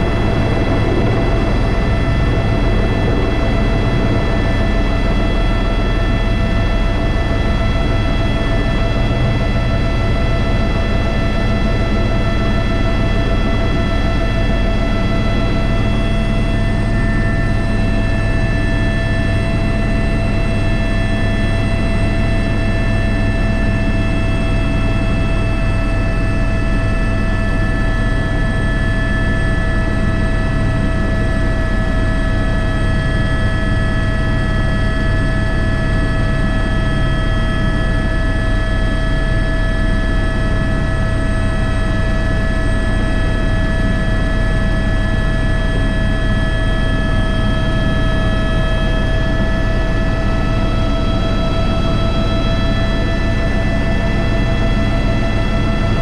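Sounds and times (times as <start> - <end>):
helicopter rotor and engine rumble: 0.0 - 56.0
turbine whine: 0.0 - 56.0.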